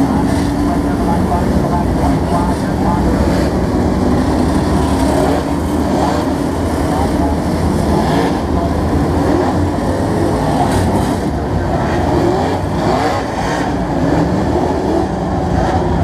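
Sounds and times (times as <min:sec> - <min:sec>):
engines passing by: 0:00.0 - 0:16.0
stock car engines droning: 0:00.0 - 0:16.0.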